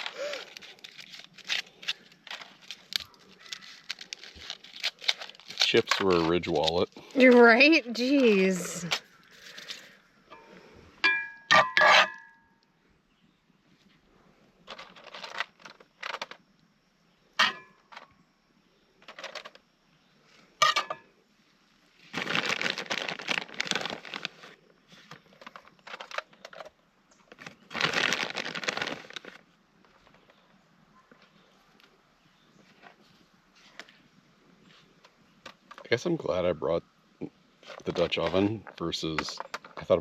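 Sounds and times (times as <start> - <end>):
plastic packaging crinkling: 0.0 - 9.9, 14.7 - 16.4, 22.0 - 26.7, 27.3 - 30.4.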